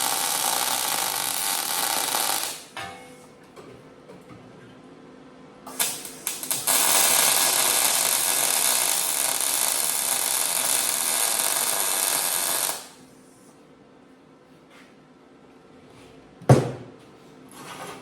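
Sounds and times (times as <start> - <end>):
welding arc hissing: 0.0 - 2.8, 5.7 - 13.0.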